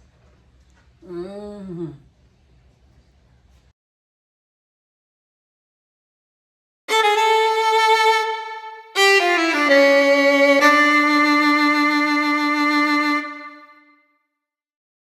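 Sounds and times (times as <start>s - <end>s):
melodic instrument playing: 6.9s - 13.7s.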